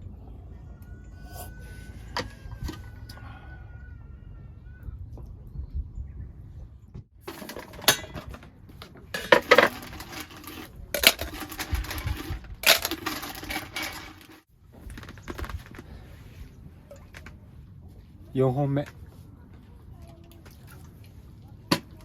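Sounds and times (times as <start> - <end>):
metal and dishware clinking: 7.3 - 8.4, 9.2 - 14.4.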